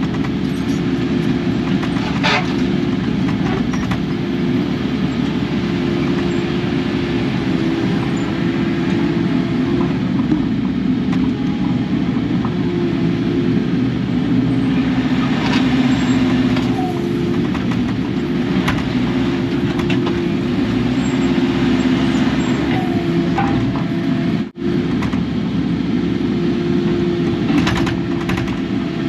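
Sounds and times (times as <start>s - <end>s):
machine knocks and clanks: 0.0s - 4.2s, 16.5s - 20.3s, 27.5s - 28.8s
excavator diesel engine running: 0.0s - 29.0s.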